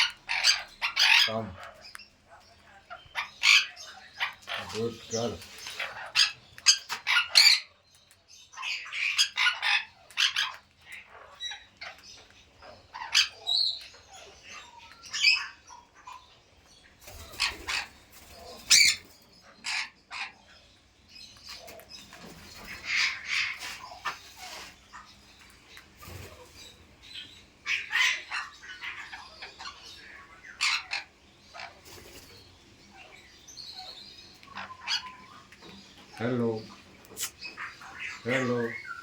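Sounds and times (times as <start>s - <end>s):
parrot squawking and chirping: 0.0s - 39.0s.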